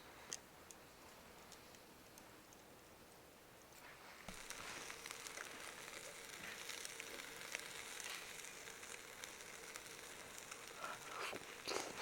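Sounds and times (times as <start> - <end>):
crackles and pops: 0.1 - 12.0
meat sizzling over charcoal: 3.8 - 12.0.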